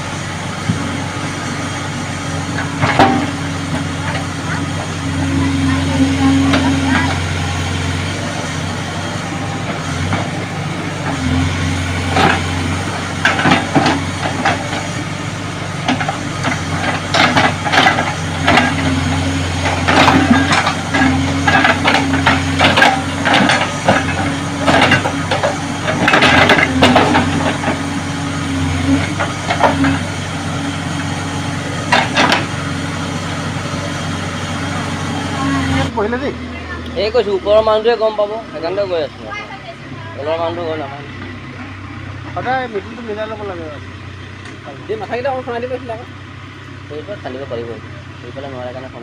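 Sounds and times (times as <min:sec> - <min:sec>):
diesel engine running: 0:00.0 - 0:49.0
excavator bucket scraping: 0:02.5 - 0:15.1, 0:15.8 - 0:32.8
knocks of soil and stones: 0:15.8 - 0:30.2.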